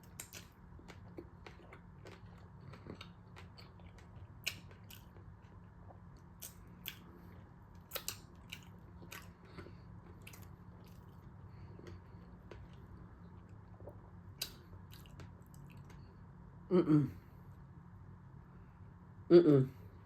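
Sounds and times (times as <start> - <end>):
person chewing food: 0.0 - 16.3
low steady hum: 0.0 - 20.0
lip smacks and clicks: 7.8 - 9.3.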